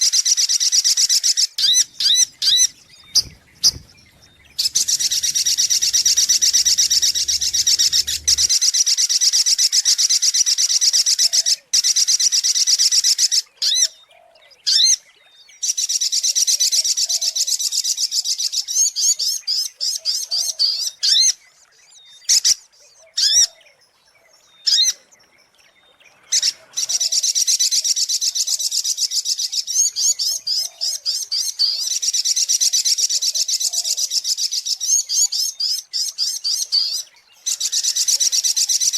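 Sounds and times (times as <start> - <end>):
bird rapid high trilling: 1.6 - 8.6
bird sharp calls: 1.6 - 8.6.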